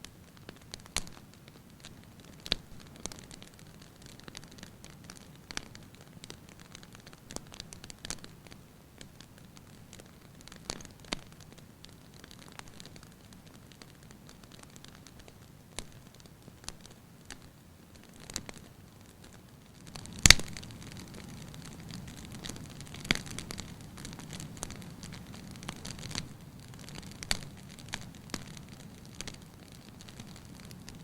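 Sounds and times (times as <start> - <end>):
fire crackling: 0.0 - 31.0
sharp pops of fire: 0.4 - 8.3, 19.8 - 31.0.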